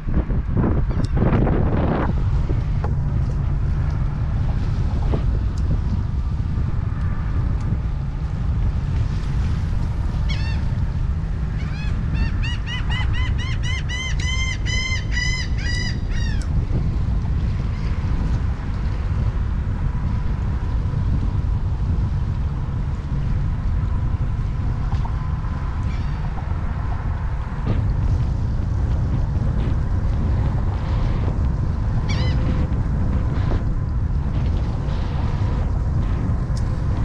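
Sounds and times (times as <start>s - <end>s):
wind rumbling on microphone: 0.0s - 37.0s
bird calling in rapid notes: 10.2s - 10.7s, 11.5s - 16.5s, 32.0s - 32.4s.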